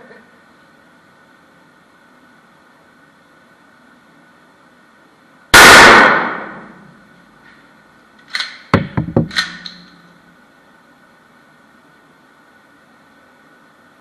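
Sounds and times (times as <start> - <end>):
loud gunshot: 5.6 - 6.8
sharp metallic clicks: 8.2 - 10.0.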